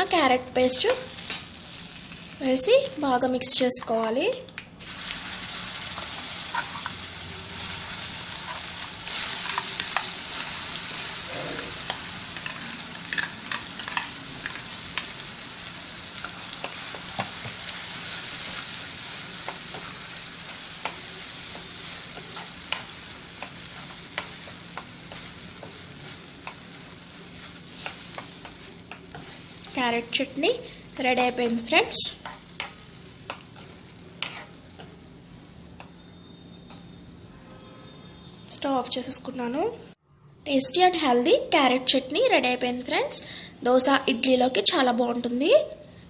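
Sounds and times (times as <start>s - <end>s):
paste sizzling in hot oil: 0.2s - 3.1s, 4.8s - 36.5s.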